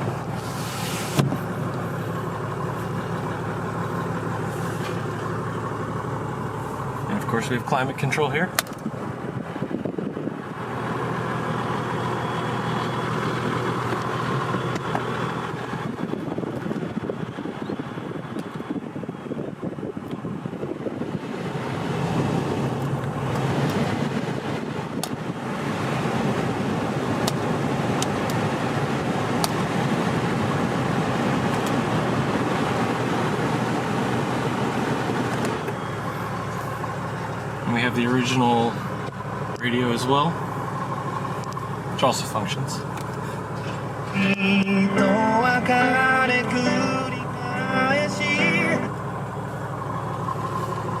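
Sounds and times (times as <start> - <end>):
blower fan air rushing: 0.0 - 5.3, 15.4 - 37.8
diesel engine idling: 0.0 - 51.0.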